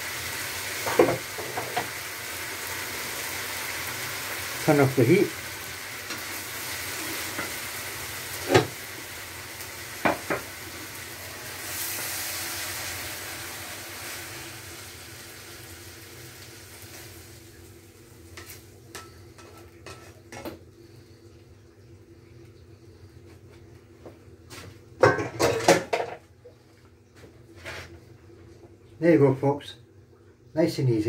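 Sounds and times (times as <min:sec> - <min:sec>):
stir fry sizzling in a pan: 0:00.0 - 0:23.2.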